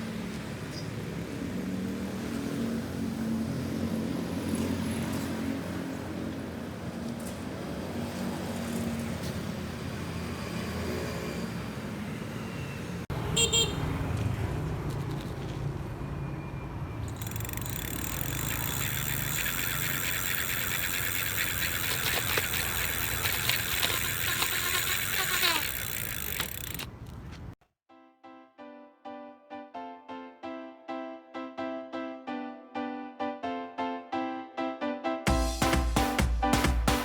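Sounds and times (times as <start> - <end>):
street and vehicle noise: 0.0 - 27.6.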